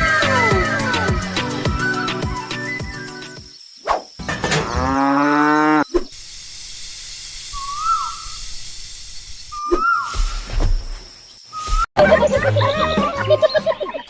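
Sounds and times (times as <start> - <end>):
background music: 0.0 - 3.5, 12.0 - 14.0
outdoor ambience hiss: 1.2 - 11.9
cow mooing: 4.6 - 5.9.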